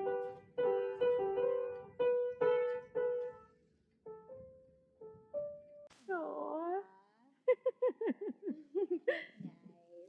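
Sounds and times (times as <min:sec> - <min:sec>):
single piano notes: 0:00.0 - 0:03.5.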